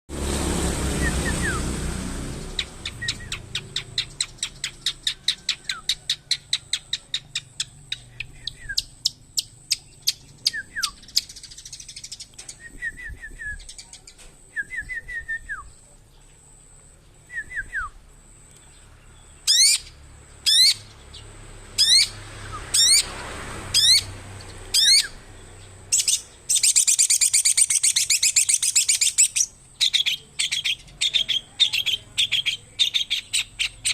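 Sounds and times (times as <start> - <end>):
sharp downward-sweeping bird calls: 0.7 - 15.6, 19.4 - 23.1, 23.7 - 33.9
shrike chirping: 0.8 - 12.7, 24.7 - 33.9
rapid bird chatter: 2.2 - 12.6, 23.8 - 33.9.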